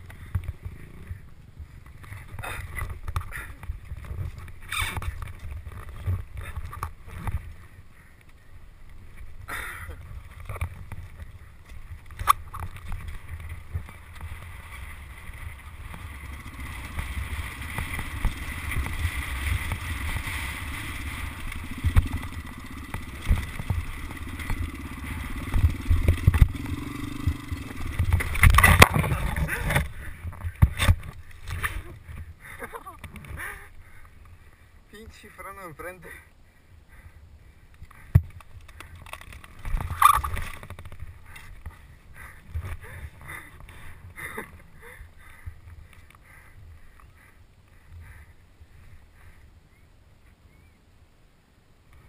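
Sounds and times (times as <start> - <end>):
engine drone: 0.0 - 34.7.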